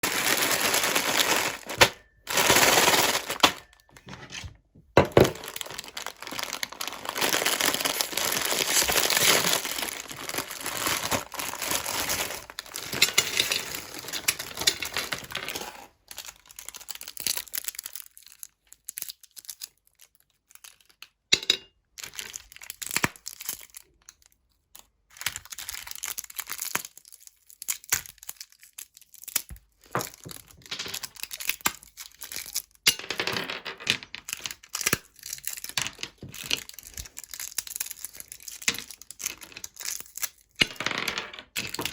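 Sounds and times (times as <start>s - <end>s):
hard candy crunching in grinder: 0.0s - 3.9s, 5.2s - 19.4s, 34.3s - 40.8s.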